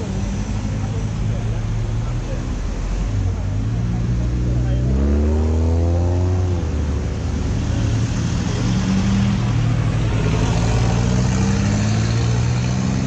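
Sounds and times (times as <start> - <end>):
road noise: 0.0 - 13.0
engine revving: 4.0 - 13.0.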